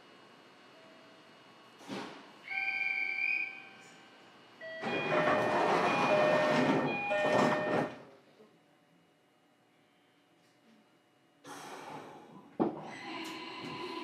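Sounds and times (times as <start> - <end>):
train rushing with whistling tones: 2.5 - 3.9.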